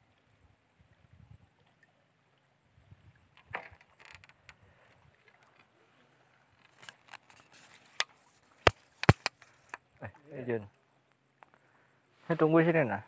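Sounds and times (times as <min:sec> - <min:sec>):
water sloshing: 0:03.0 - 0:07.6.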